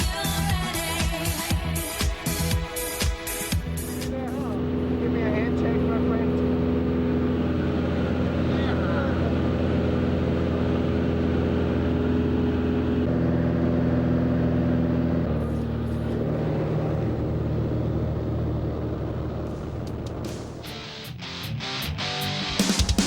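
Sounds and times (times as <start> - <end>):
plane engine and propeller droning: 3.9 - 20.8.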